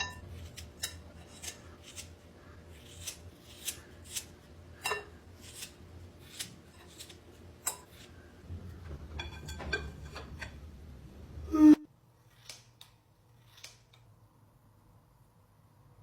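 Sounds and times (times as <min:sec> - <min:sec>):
scissors snipping: 0:12.4 - 0:14.0.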